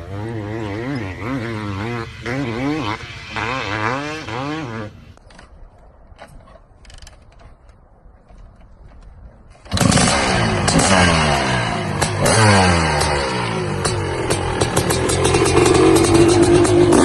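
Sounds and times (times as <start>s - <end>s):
motorcycle engine revving: 0.0s - 5.2s, 9.6s - 17.0s.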